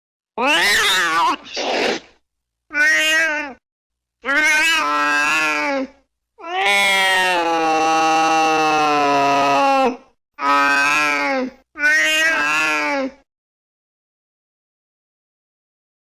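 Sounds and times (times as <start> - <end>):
cat meowing: 0.4 - 1.6, 2.7 - 3.6, 4.2 - 5.7, 6.4 - 7.5, 11.8 - 13.1.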